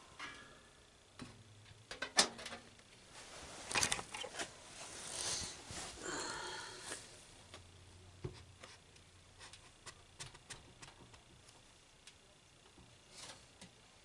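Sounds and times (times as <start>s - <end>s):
rustling scrape: 3.1s - 6.0s.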